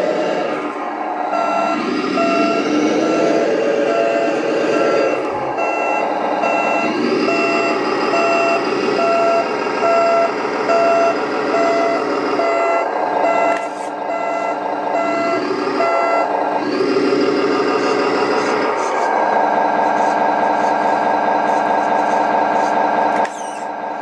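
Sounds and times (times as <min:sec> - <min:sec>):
diesel truck engine running: 0:00.0 - 0:24.0
reversing alarm beeping: 0:01.3 - 0:18.6.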